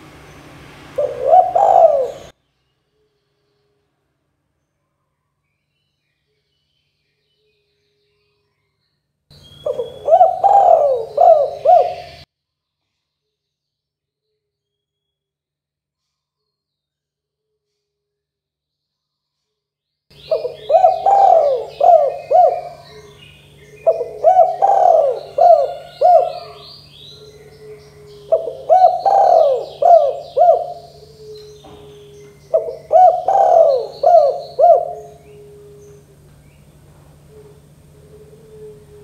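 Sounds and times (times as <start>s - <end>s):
small birds chirping: 0.0s - 3.7s, 4.6s - 13.8s, 20.1s - 38.8s
dove cooing: 0.9s - 2.3s, 9.6s - 12.2s, 20.2s - 39.0s
low steady hum: 9.3s - 12.3s, 20.1s - 39.0s.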